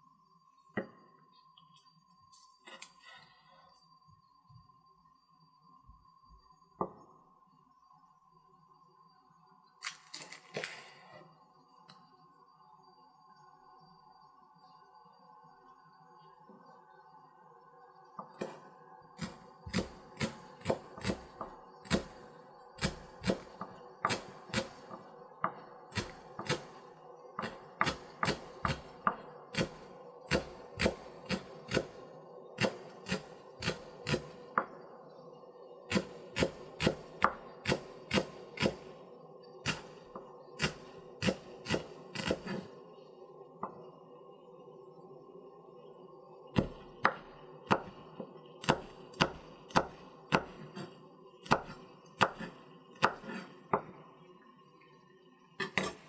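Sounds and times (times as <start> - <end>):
knife chopping on wooden board: 48.6 - 50.6, 51.5 - 53.4.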